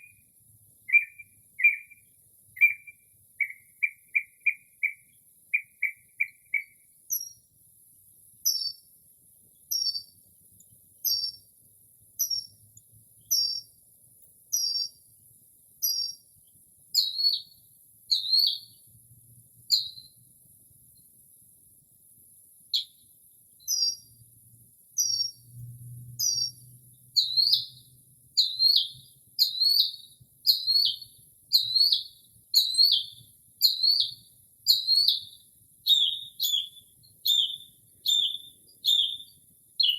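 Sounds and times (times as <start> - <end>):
mockingbird singing: 0.9 - 7.4, 8.4 - 8.8, 9.7 - 10.2, 11.0 - 11.4, 13.3 - 13.7, 14.5 - 15.0, 15.8 - 16.2, 17.0 - 17.5, 18.1 - 18.8, 19.7 - 20.1, 23.6 - 24.1, 25.0 - 25.4, 26.2 - 39.9.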